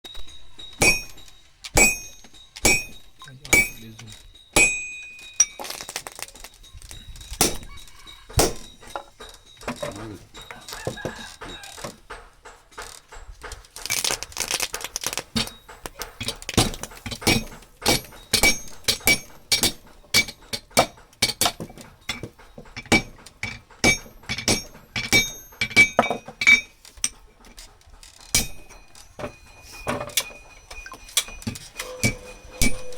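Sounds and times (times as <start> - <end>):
hammer striking steel on anvil: 0.1 - 5.8, 7.4 - 27.2, 28.3 - 32.9.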